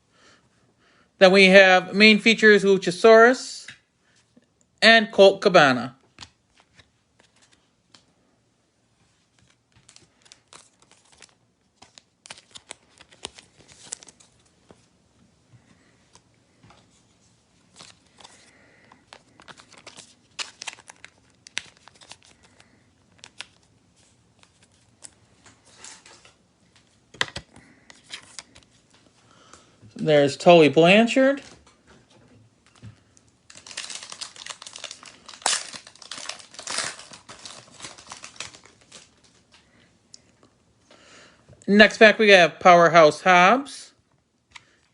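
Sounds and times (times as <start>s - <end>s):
card packaging crinkling: 6.2s - 8.0s, 9.3s - 14.8s, 17.7s - 26.4s, 27.2s - 28.9s, 32.6s - 39.6s.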